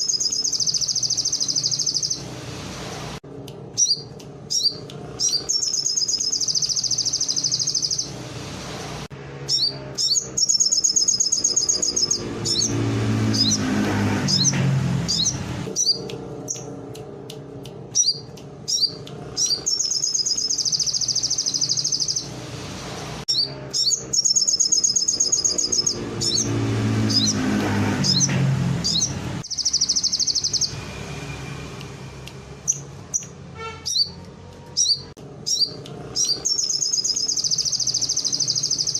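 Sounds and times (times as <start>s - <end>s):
songbird trilling: 0.0s - 2.2s, 3.8s - 8.1s, 9.5s - 13.6s, 14.3s - 16.7s, 17.9s - 22.3s, 23.3s - 26.5s, 28.1s - 30.8s, 32.6s - 34.2s, 34.8s - 38.9s
sharp bird chirps: 0.0s - 2.4s, 3.8s - 8.2s, 9.4s - 16.8s, 17.9s - 22.4s, 23.3s - 38.9s.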